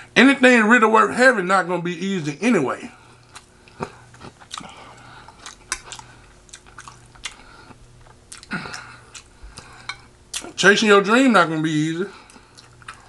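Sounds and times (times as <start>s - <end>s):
low steady hum: 0.0s - 13.0s
person chewing with mouth clicks: 3.1s - 10.6s, 12.2s - 13.0s.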